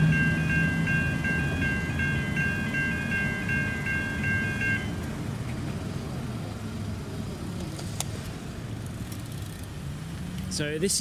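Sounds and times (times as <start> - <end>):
electronic crossing bell ringing: 0.0 - 5.0
low vehicle rumble: 0.0 - 11.0.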